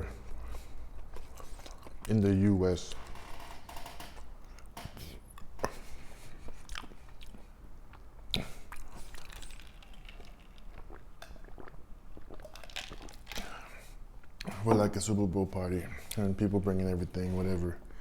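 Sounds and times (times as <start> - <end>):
chewing crunchy chips: 0.2 - 2.2, 5.4 - 14.6
wet mouth sounds: 4.6 - 14.6.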